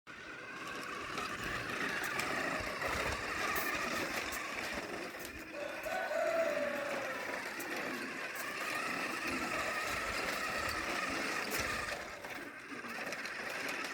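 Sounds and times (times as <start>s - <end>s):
model tractor motor whirring: 0.1s - 13.9s
pitched motor whine: 0.1s - 13.9s.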